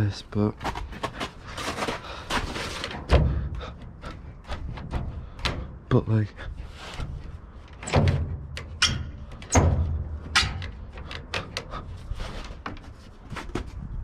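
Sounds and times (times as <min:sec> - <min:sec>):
tailgate knocking and clunking: 0:02.8 - 0:05.9, 0:07.7 - 0:11.8
light clicks and rattles: 0:06.6 - 0:13.0.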